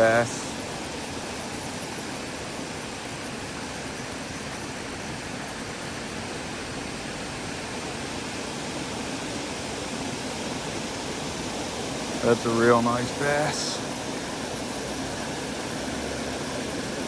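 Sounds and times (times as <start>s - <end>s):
creek water rushing: 11.8s - 16.7s.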